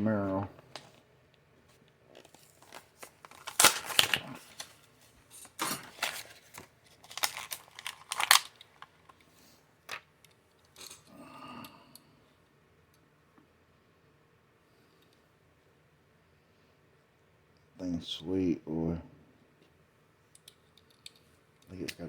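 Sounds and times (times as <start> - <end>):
packaging torn and crinkled: 2.2 - 9.1.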